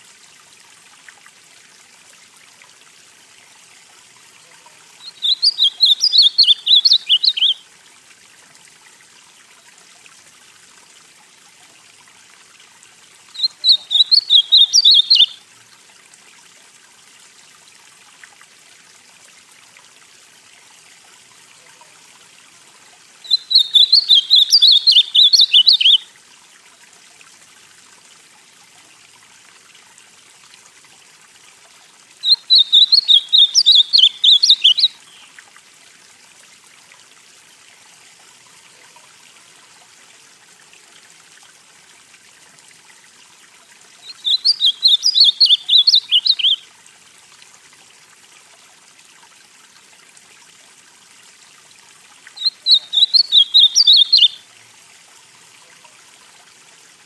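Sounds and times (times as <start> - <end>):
faint steady hiss: 0.0 - 57.0
bird singing warbled phrases: 5.0 - 7.6, 13.3 - 15.4, 23.2 - 26.0, 32.2 - 35.3, 44.0 - 46.6, 52.4 - 54.4.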